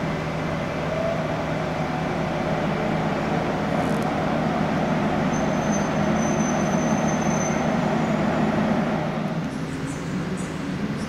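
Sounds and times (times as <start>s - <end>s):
locomotive and wheels rumbling: 0.0s - 11.0s
thin high squeal: 5.3s - 8.2s.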